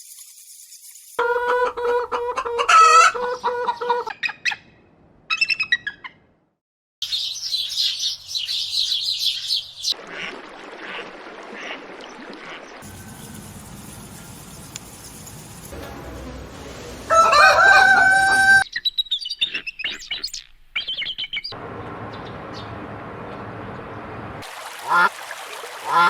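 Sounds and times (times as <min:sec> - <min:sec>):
bird calls: 0:12.4 - 0:15.8.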